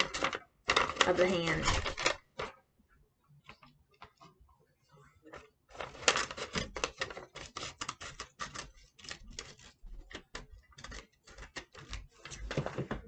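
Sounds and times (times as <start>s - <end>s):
craft material crinkling: 0.0s - 2.5s, 5.3s - 13.0s.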